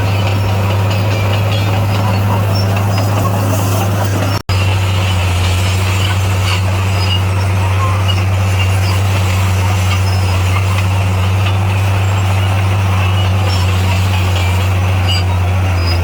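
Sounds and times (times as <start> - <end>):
bulldozer diesel engine droning: 0.0 - 16.0.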